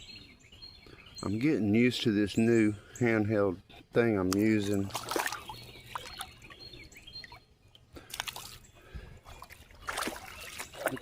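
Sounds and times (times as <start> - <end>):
water dripping in creek: 4.2 - 8.6, 9.2 - 11.0
water splash: 4.8 - 6.3, 9.4 - 11.0.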